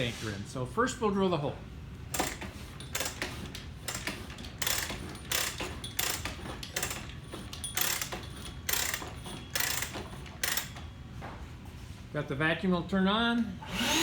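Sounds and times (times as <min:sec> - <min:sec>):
ratchet feed clicking: 0:02.1 - 0:10.8
drill press drilling concrete: 0:02.2 - 0:10.7, 0:13.6 - 0:14.0.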